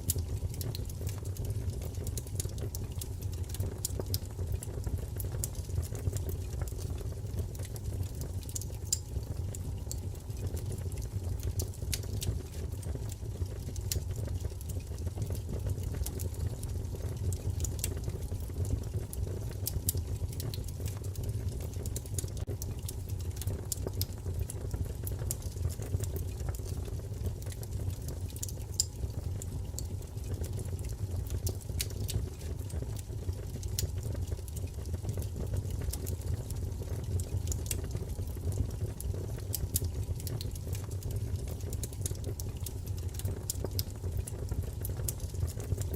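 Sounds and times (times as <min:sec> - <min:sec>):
low fire rumble: 0:00.0 - 0:45.9
wood fire crackling and popping: 0:00.0 - 0:45.9.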